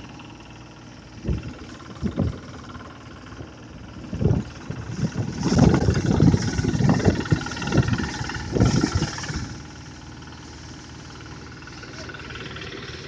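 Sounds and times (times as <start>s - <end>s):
thresher engine humming: 0.0s - 13.0s
low surges and thumps: 1.2s - 9.6s.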